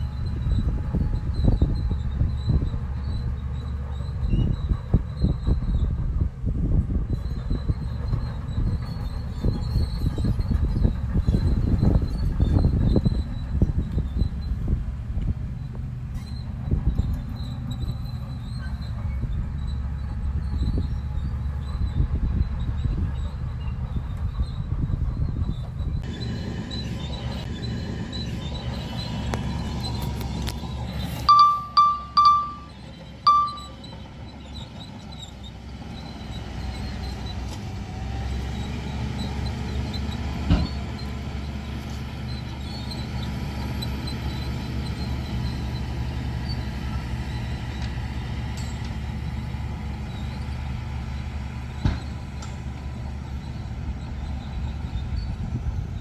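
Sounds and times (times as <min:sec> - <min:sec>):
heavy diesel engines rumbling: 0:00.0 - 0:56.0
vehicle horn honking: 0:31.3 - 0:32.7, 0:33.3 - 0:33.8.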